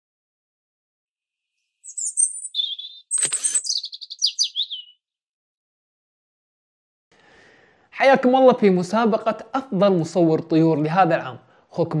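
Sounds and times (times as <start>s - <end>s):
bird chirping: 1.8s - 5.0s.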